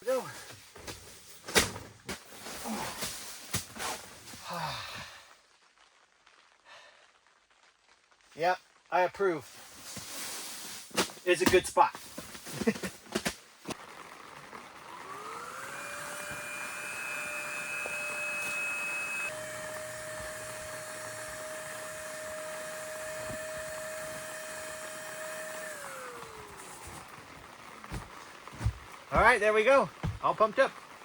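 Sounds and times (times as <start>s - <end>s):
electric air pump whining: 13.7s - 29.4s
handling knocks: 27.8s - 29.4s, 30.0s - 30.4s.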